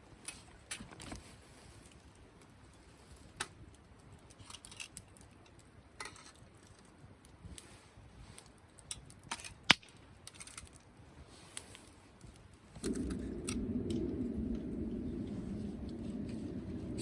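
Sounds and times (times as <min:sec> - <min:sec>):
campfire wood crackling: 0:00.0 - 0:17.0
low rushing noise: 0:12.8 - 0:17.0.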